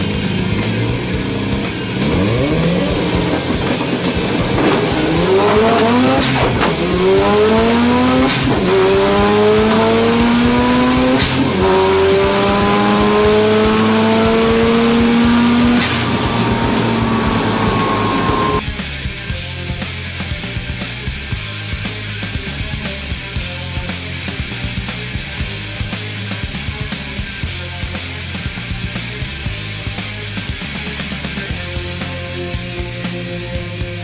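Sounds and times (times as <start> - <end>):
rotary engine accelerating: 0.0 - 18.6.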